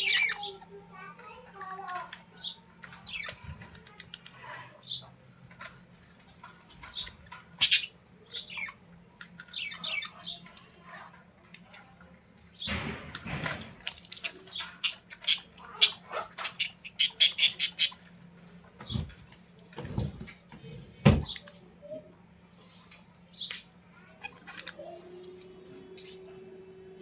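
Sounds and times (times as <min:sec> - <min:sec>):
bird squawking and chirping: 0:00.0 - 0:00.6, 0:06.8 - 0:08.9, 0:09.5 - 0:10.5, 0:14.2 - 0:18.1.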